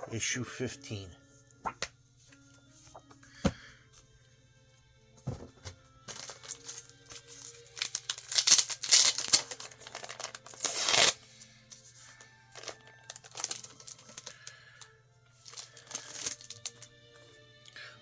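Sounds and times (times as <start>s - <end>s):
plastic bags crinkling: 6.1s - 11.2s, 12.1s - 17.0s.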